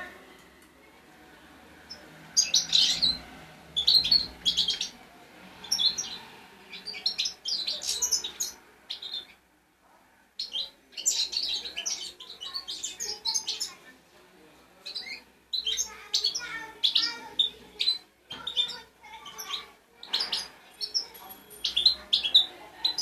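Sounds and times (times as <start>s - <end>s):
goldfinch singing: 1.9s - 5.0s, 14.8s - 23.0s.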